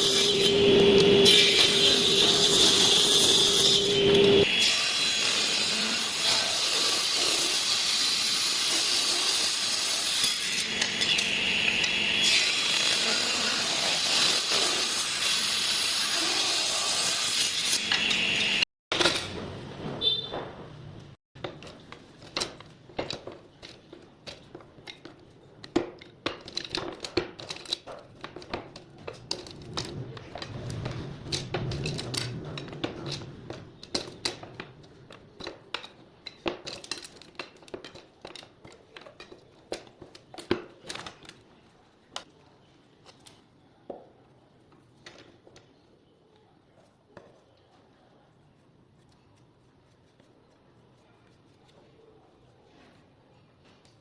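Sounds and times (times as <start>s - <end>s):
small pieces tapping and clinking: 21.4s - 41.4s.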